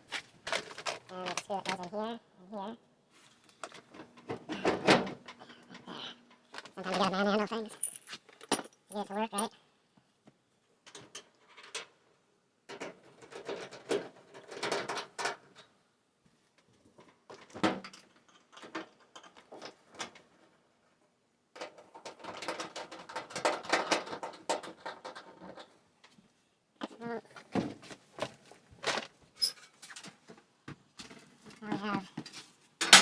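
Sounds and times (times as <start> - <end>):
metal panels clattering and scraping: 3.6 - 5.6, 12.7 - 15.7, 21.6 - 25.8, 32.3 - 33.0.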